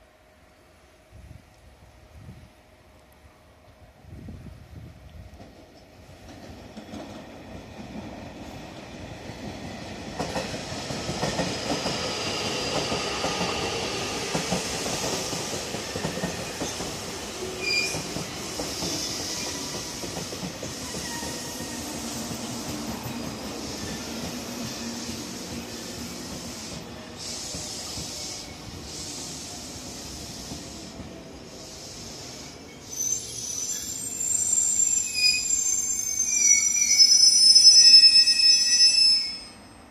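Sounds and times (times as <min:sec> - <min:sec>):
train wheels rumbling on rails: 0:04.0 - 0:34.9
high brake squeal: 0:17.6 - 0:20.0, 0:20.7 - 0:22.3, 0:31.5 - 0:39.9.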